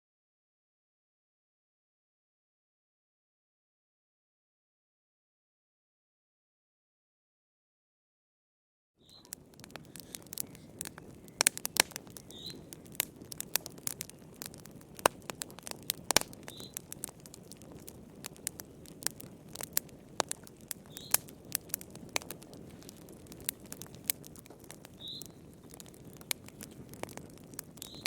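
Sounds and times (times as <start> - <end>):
wood fire crackling: 9.0 - 28.0.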